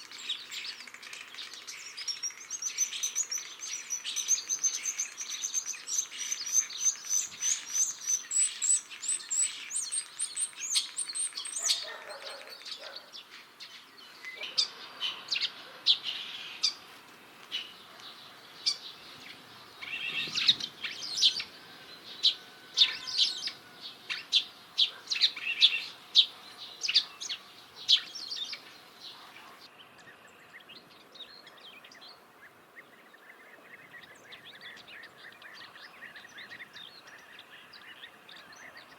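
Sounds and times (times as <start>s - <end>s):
starling singing: 0.0s - 13.2s, 18.4s - 28.9s.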